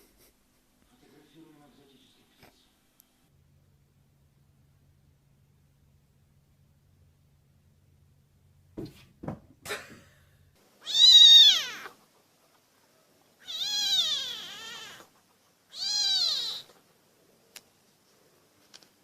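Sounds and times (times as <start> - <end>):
kitten meowing: 10.8 - 12.0, 13.4 - 15.1, 15.7 - 16.8.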